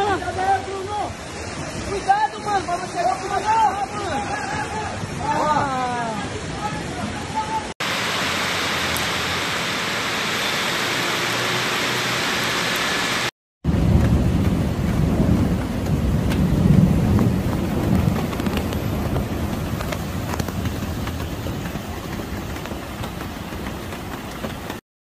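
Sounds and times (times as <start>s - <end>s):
heavy rain pouring: 0.0s - 24.8s
deep uneven rumble: 13.7s - 24.8s.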